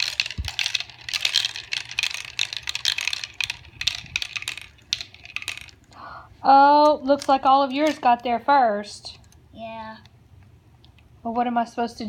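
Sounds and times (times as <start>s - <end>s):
marbles clattering down a run: 0.0s - 5.9s.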